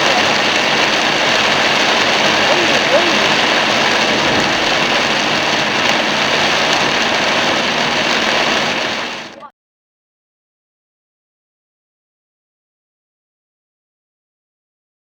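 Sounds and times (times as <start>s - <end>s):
car engine: 0.0s - 9.4s
heavy rain and tyre spray: 0.0s - 9.5s.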